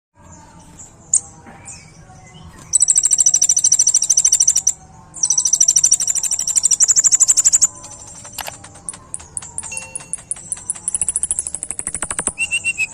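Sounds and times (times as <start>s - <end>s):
faint bird chirps: 1.1s - 12.9s
bird rapid high trills: 2.8s - 12.9s.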